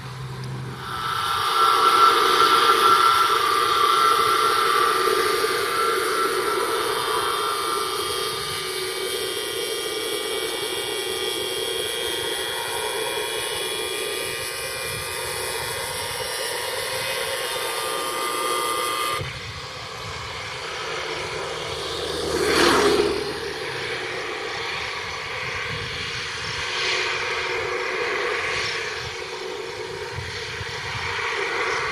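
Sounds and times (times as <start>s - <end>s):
loud whoosh: 0.0s - 12.6s
jet engines whining: 0.0s - 31.9s.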